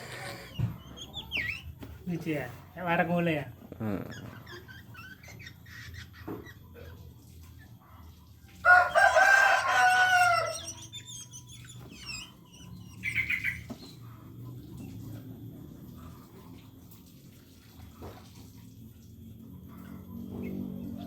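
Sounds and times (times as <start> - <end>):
high bird chirps: 0.2 - 1.8, 9.0 - 14.1
rooster crowing: 8.6 - 10.8.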